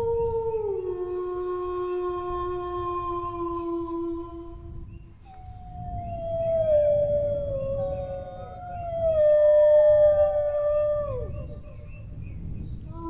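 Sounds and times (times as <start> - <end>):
other dogs howling higher: 0.0 - 12.2
dog howling: 5.5 - 11.9.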